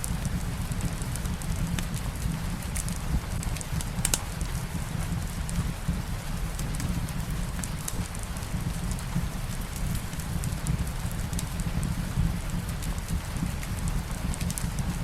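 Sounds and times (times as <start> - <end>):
fire crackling: 0.0 - 15.0
steady rain: 0.0 - 15.0.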